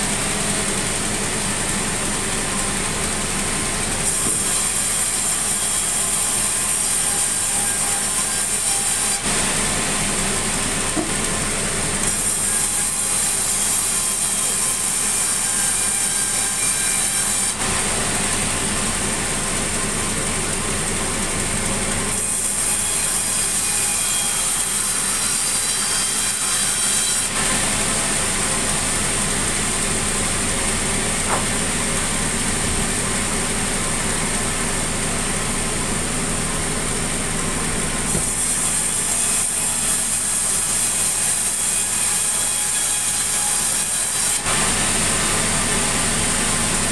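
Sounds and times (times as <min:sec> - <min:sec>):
saw cutting through wood: 0:00.0 - 0:46.9
sawmill saw machine hum: 0:00.0 - 0:46.9.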